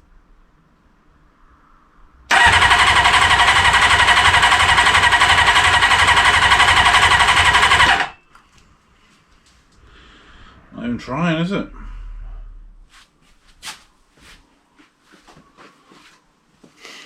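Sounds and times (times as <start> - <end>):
engine cranking on starter: 2.3 - 8.2.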